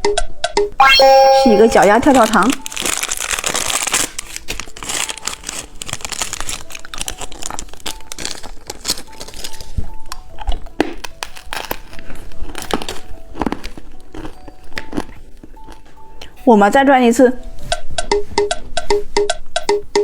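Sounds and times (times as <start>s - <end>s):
plastic wrapper crinkling: 1.8s - 15.9s.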